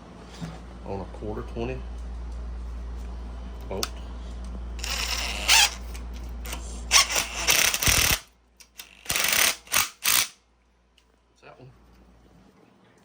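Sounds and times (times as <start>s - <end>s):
power tool driving a bolt: 4.8s - 10.4s.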